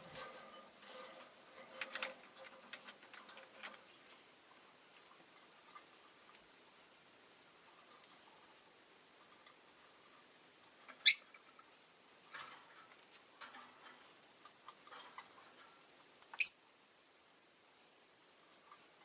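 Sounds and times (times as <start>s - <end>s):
bird chirps: 11.0s - 11.3s, 16.4s - 16.7s.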